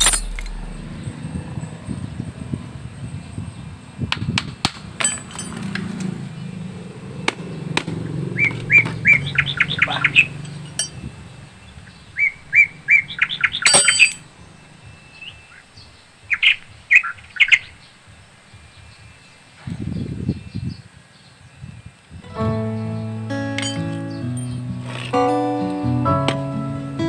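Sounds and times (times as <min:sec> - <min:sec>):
ringing metal clink: 0:00.0 - 0:01.1, 0:05.0 - 0:06.2, 0:09.8 - 0:11.3, 0:13.6 - 0:14.3, 0:23.6 - 0:24.7
small bird chirping: 0:07.6 - 0:13.8.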